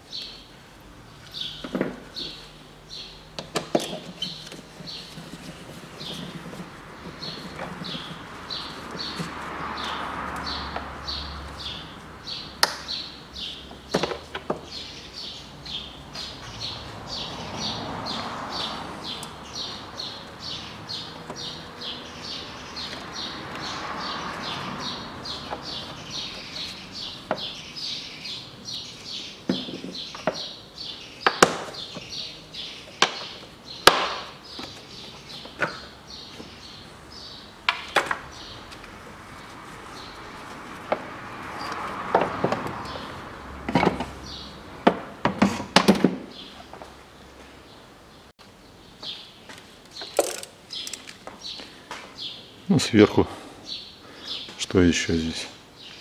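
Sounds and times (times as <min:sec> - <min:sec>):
hand tools clicking and knocking: 0:49.9 - 0:51.4.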